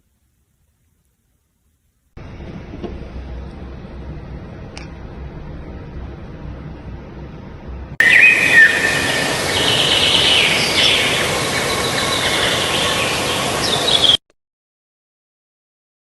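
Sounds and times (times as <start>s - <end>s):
steady background hiss: 0.0s - 14.2s
high chirping calls: 8.0s - 14.2s.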